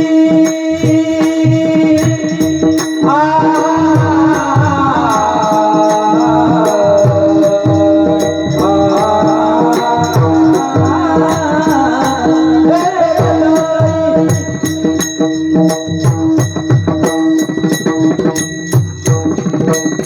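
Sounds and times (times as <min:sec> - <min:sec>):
person singing devotional song: 0:00.0 - 0:15.2
bright metallic jingles: 0:02.0 - 0:20.0.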